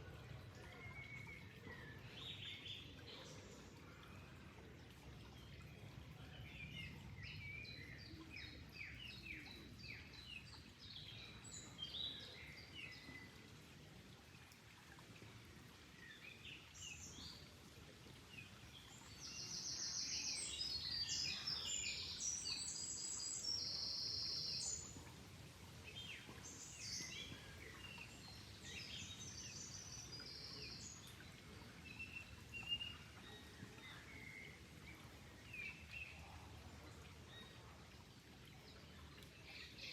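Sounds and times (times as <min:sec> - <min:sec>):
flowing water rushing: 0:00.0 - 0:39.9
dense high-pitched birdsong: 0:18.7 - 0:25.0, 0:25.9 - 0:37.7.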